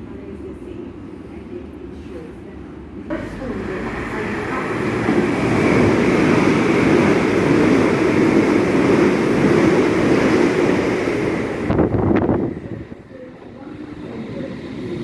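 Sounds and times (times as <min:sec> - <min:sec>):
train rumbling past: 0:03.0 - 0:15.0.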